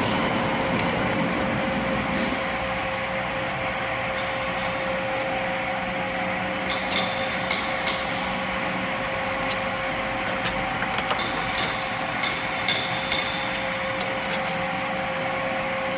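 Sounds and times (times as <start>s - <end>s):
washing machine humming: 0.0s - 15.9s
sharp clinks and knocks: 3.4s - 5.1s, 6.7s - 8.7s, 10.9s - 14.1s.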